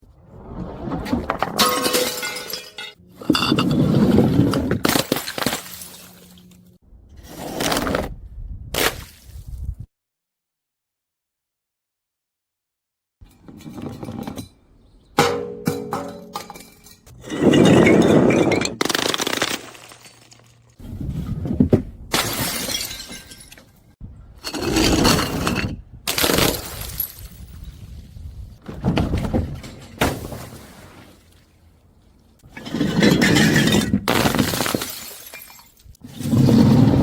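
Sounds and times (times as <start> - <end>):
glass bottles crushed and shattering: 1.4 - 6.5, 15.2 - 20.8, 22.1 - 23.9, 24.5 - 27.6, 32.5 - 36.6.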